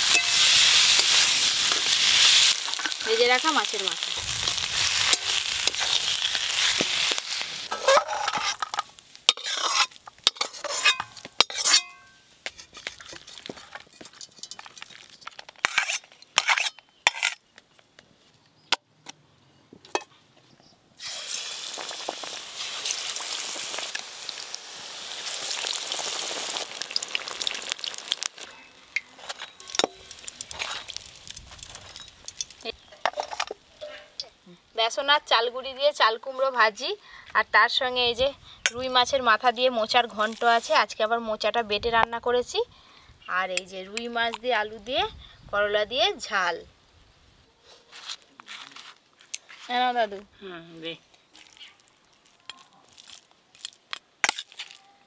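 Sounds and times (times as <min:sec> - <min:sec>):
vegetables deep-frying in hot oil: 0:00.0 - 0:11.4, 0:21.0 - 0:34.4
curry sizzling in a wok: 0:00.0 - 0:16.0, 0:21.0 - 0:35.4
spatula scraping a wok: 0:04.1 - 0:17.4.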